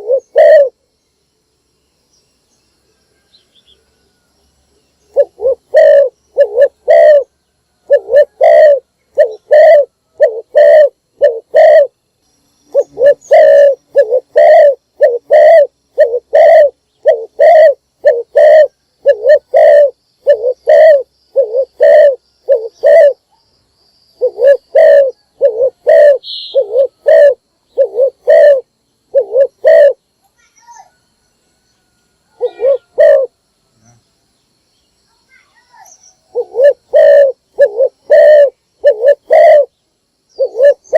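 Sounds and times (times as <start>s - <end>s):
dove cooing: 0.0s - 0.8s, 5.1s - 12.0s, 12.7s - 23.2s, 24.2s - 30.0s, 32.3s - 33.4s, 35.7s - 39.7s, 40.4s - 40.9s.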